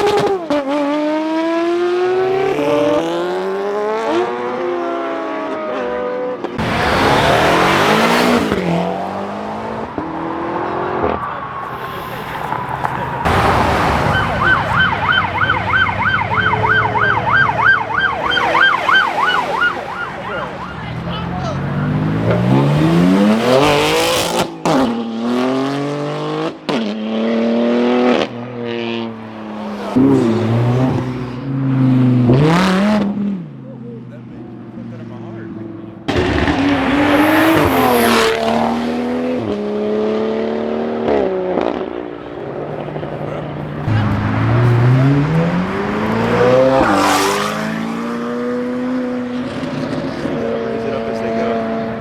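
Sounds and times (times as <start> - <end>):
car accelerating hard: 0.0 - 33.6, 34.9 - 52.0
emergency siren yelping: 9.6 - 22.2.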